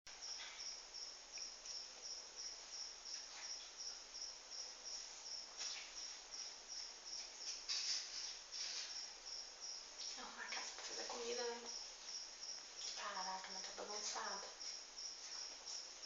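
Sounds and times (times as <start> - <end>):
cricket chirping: 0.1 - 16.0
soft rustling: 4.9 - 9.2, 10.0 - 16.0.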